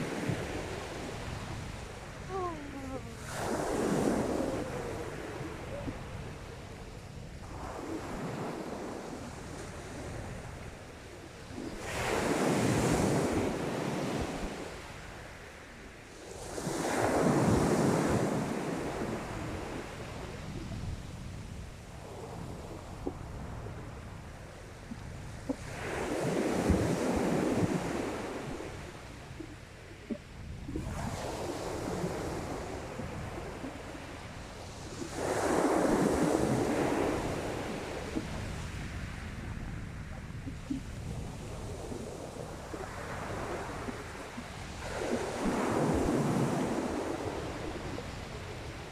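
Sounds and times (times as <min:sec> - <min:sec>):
waves breaking on shore: 0:00.0 - 0:48.9.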